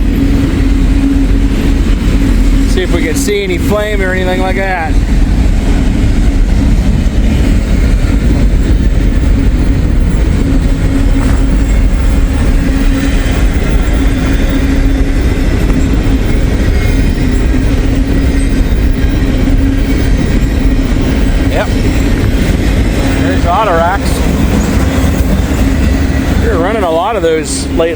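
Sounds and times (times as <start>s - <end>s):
freight train wheels clattering on rail: 0.0s - 27.9s.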